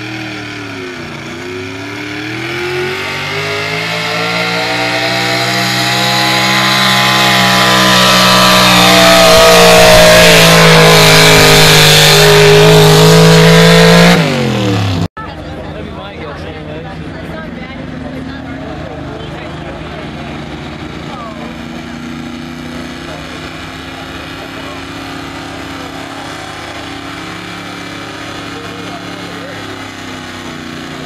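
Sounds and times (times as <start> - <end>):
truck engine at high revs: 0.0 - 31.0.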